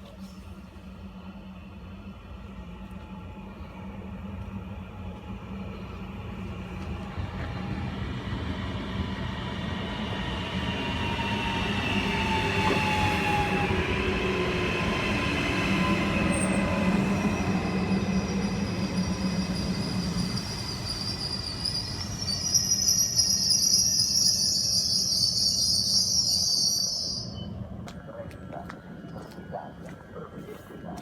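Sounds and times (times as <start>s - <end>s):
train rumble with whining tones: 0.0s - 31.0s
wheel or brake squeal: 18.1s - 27.5s.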